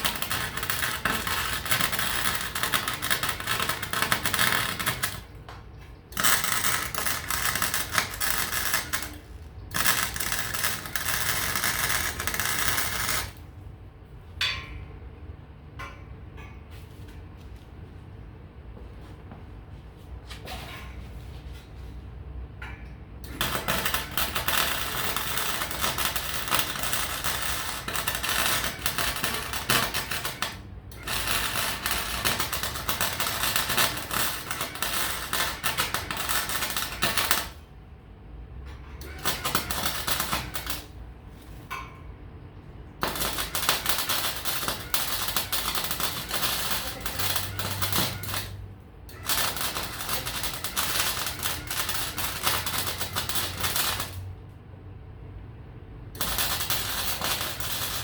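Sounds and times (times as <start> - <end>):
welding arc crackling: 0.0 - 13.5, 23.2 - 37.6, 39.0 - 41.4, 42.9 - 54.4, 56.1 - 58.0.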